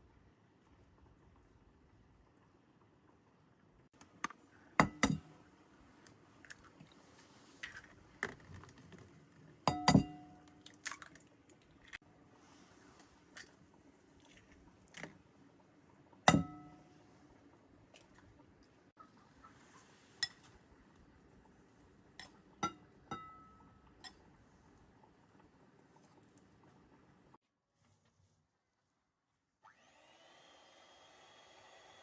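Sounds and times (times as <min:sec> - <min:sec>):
cutlery and dishes clinking: 0:09.7 - 0:10.4.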